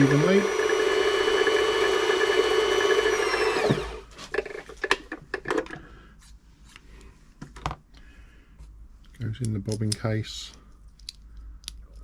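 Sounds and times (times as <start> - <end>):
sewing machine motor running: 0.0 - 4.0.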